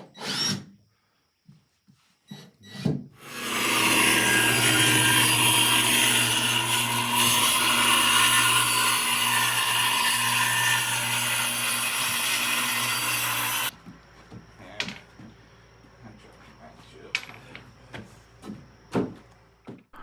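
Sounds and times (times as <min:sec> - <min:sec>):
power saw cutting wood: 0:03.2 - 0:13.7.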